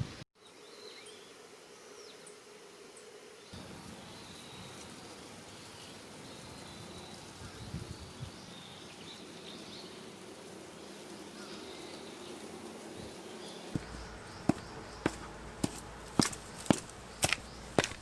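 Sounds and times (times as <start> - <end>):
soft low thumps: 13.8 - 18.0.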